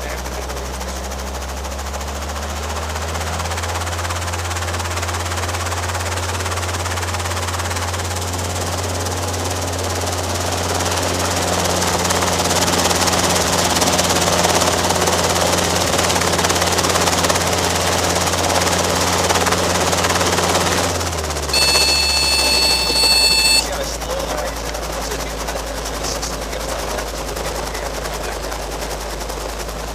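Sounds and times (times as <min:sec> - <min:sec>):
helicopter rotors and engine drone: 0:00.0 - 0:05.1, 0:21.6 - 0:29.9.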